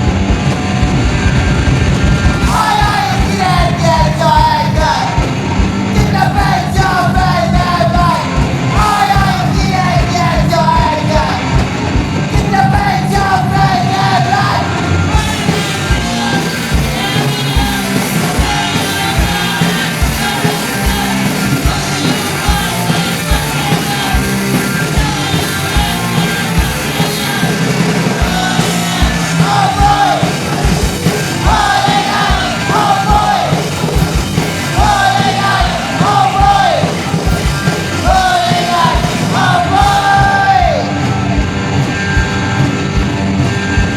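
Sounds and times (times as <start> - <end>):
punk rock band playing: 0.0 - 43.9
shouted vocals: 2.4 - 11.6, 12.3 - 41.3.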